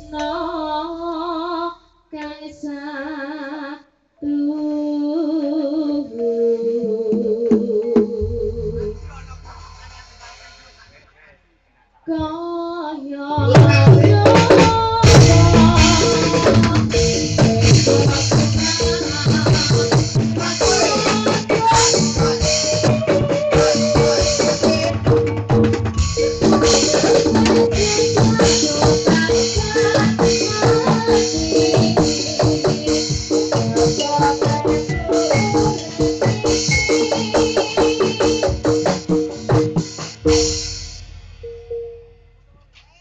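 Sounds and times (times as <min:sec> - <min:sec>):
hand drums fast rhythm: 0:13.4 - 0:41.2
gamelan ensemble playing: 0:13.4 - 0:42.4
ringing metallophones and gongs: 0:13.4 - 0:42.4.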